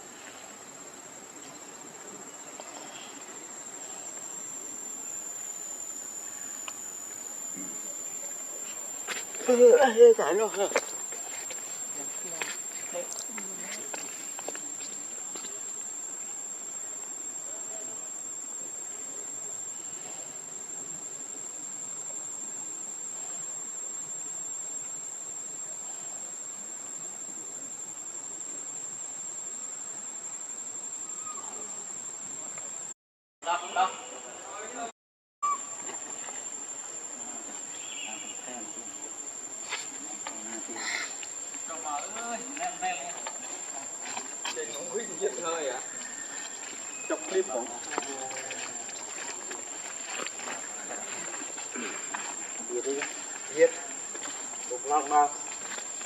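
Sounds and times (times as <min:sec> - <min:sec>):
faint background hiss: 0:00.0 - 0:32.9
faint background noise: 0:00.0 - 0:56.0
insect high-pitched trill: 0:00.2 - 0:34.2, 0:35.4 - 0:56.0.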